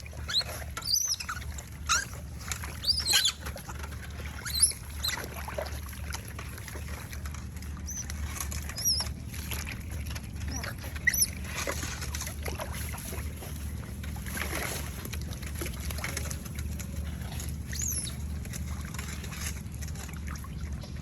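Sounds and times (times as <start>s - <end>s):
steady low hum: 0.0s - 21.0s
water splashing: 0.0s - 21.0s
otter chirping: 0.3s - 2.1s, 2.8s - 3.4s, 4.4s - 5.2s, 17.7s - 18.2s.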